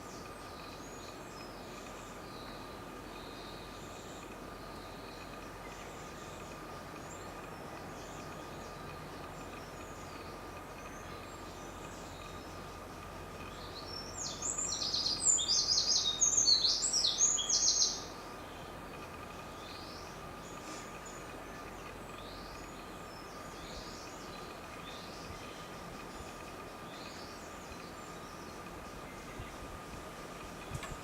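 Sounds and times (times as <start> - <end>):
faint high bird calls: 0.0 - 18.7
steady background hiss: 0.0 - 31.0
wren singing trills: 0.0 - 31.0.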